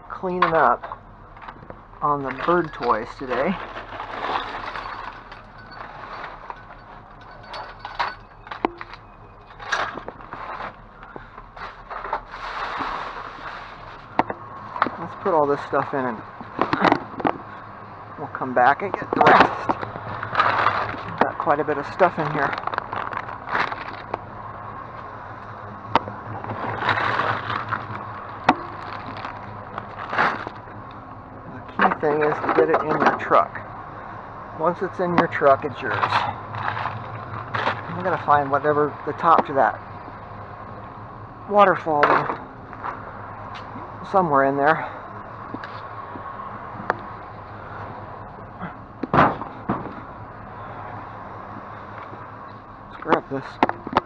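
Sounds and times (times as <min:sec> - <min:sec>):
knocks and rustling: 0:00.0 - 0:41.4, 0:44.9 - 0:54.0
low steady hum: 0:00.0 - 0:54.0
objects rummaged in dumpster: 0:00.0 - 0:54.0
sharp knocks: 0:49.0 - 0:50.0.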